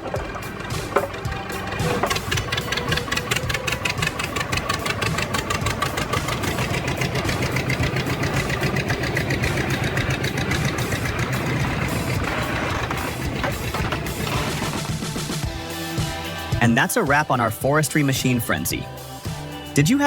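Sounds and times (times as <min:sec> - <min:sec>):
heavy machine engine pulsing: 0:00.0 - 0:15.4.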